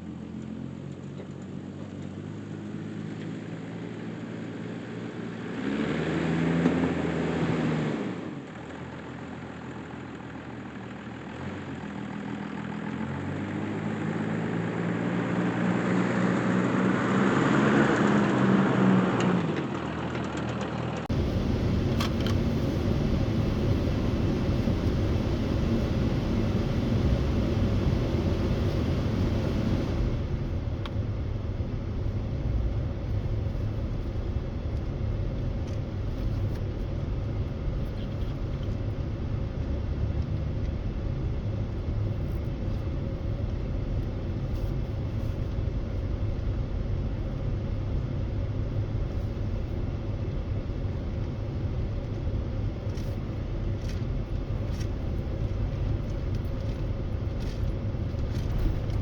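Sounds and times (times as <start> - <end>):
truck engine and road rumble: 0.0 - 59.0.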